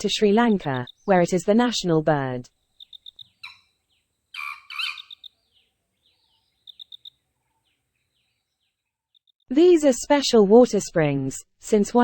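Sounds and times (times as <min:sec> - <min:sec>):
wild birds calling: 0:00.0 - 0:01.8, 0:02.6 - 0:09.2.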